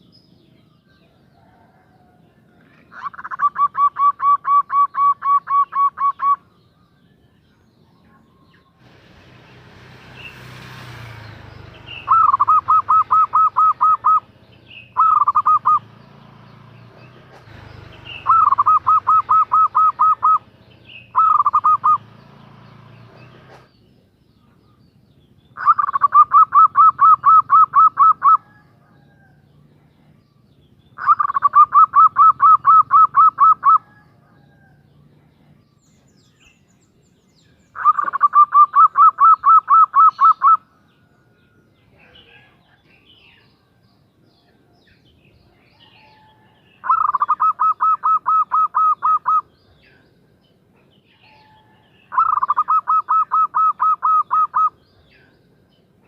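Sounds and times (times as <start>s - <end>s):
dove cooing: 1.2s - 6.5s, 11.5s - 15.9s, 17.3s - 22.0s, 25.6s - 30.1s, 31.0s - 34.9s, 37.8s - 40.6s, 45.8s - 49.6s, 50.8s - 54.8s.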